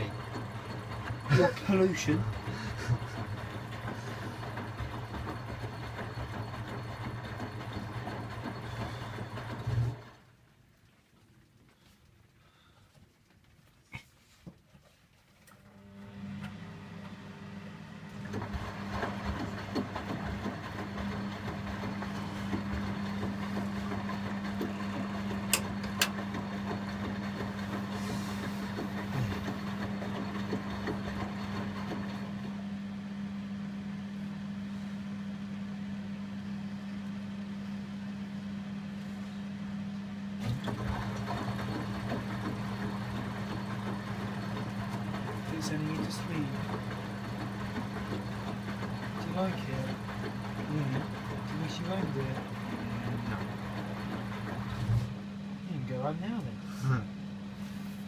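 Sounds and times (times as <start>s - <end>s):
washing machine drum tumbling: 0.0s - 10.3s, 18.2s - 32.5s, 40.4s - 55.2s
washing machine motor hum: 0.0s - 58.0s.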